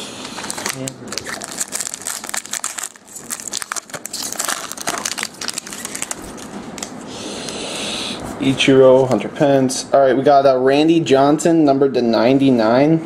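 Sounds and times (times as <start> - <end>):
card pack wrapper crinkling: 0.2 - 7.0.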